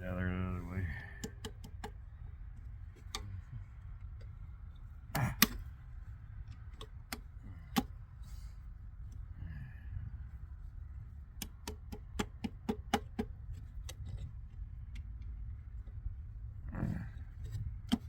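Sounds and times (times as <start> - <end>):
steady low hum: 0.0 - 18.0
metal-on-metal clicks and taps: 1.2 - 2.0, 5.1 - 5.6, 6.4 - 7.9, 11.4 - 16.0.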